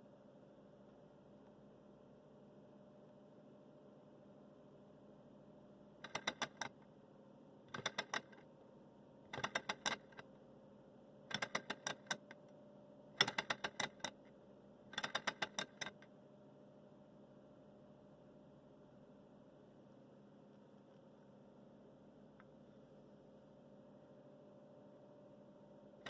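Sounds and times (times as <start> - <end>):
faint steady hum: 0.0 - 26.0
rapid mechanical clicking: 6.0 - 6.8, 7.7 - 8.4, 9.3 - 10.3, 11.3 - 12.3, 13.2 - 14.2, 14.9 - 16.0.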